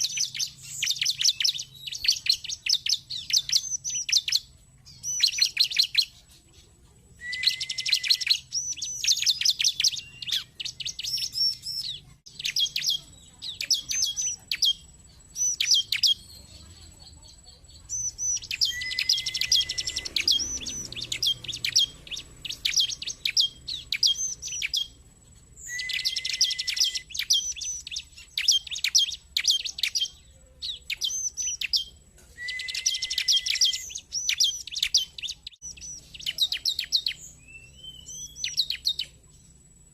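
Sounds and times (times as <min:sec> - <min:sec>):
bird calling with fast high chatter: 0:00.0 - 0:39.9
sharp down-slurred bird notes: 0:17.9 - 0:25.0, 0:25.6 - 0:39.2.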